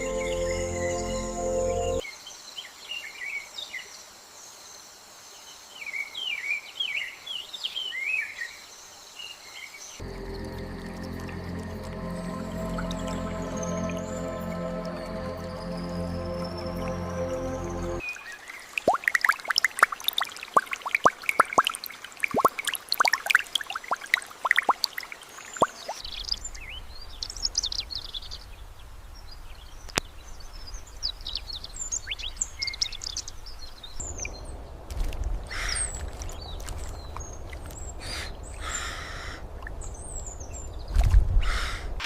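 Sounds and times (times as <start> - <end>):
low hum: 0.0 - 2.0, 10.0 - 18.0
sharp drip-like ticks: 18.8 - 26.0.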